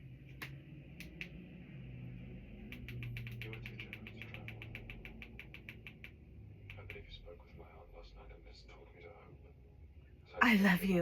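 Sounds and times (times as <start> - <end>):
rapid light ticks: 2.7 - 7.2.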